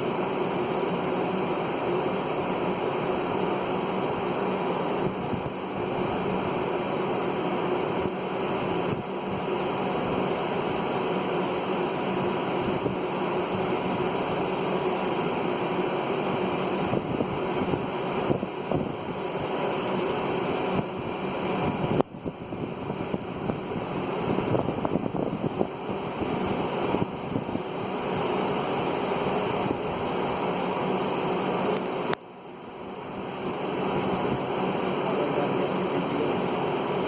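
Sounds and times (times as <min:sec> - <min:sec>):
wind on microphone: 0:05.0 - 0:06.7, 0:12.2 - 0:14.1, 0:16.8 - 0:19.6, 0:20.7 - 0:30.2.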